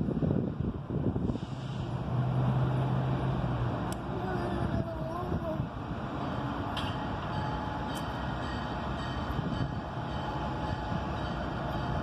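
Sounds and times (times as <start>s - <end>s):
freight train rumble: 0.0s - 12.0s.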